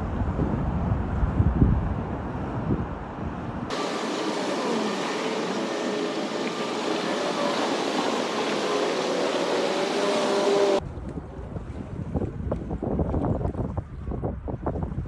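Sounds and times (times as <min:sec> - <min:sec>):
subway cars rolling on track: 0:03.7 - 0:10.8
wheel squeals: 0:03.7 - 0:10.8.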